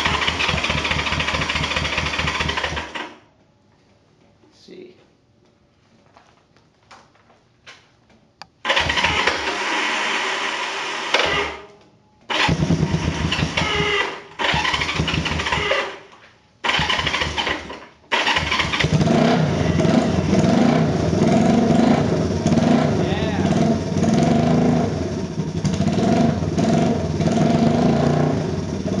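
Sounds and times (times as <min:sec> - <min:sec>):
motorcycle engine running: 0:00.0 - 0:02.9, 0:12.3 - 0:15.6, 0:18.3 - 0:29.0
motorcycle electric starter cranking: 0:00.0 - 0:03.2, 0:08.6 - 0:11.7, 0:12.3 - 0:16.0, 0:16.6 - 0:19.3.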